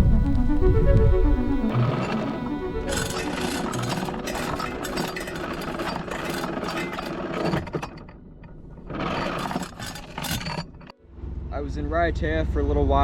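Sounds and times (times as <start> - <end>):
engine running with a rattle: 1.6 - 11.4.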